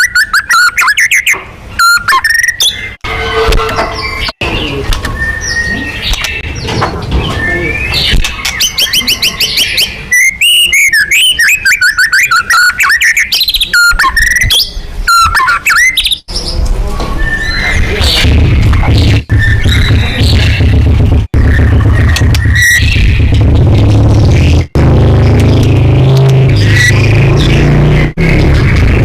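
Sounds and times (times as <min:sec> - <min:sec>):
bird singing whistles and trills: 0:00.0 - 0:03.0, 0:04.0 - 0:16.6, 0:17.2 - 0:18.2
low rumble: 0:17.8 - 0:29.0.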